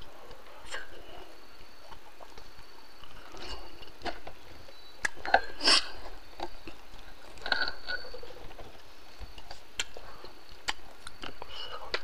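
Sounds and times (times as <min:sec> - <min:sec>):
faint high chirps: 0:00.6 - 0:08.4
person chewing: 0:05.0 - 0:12.0.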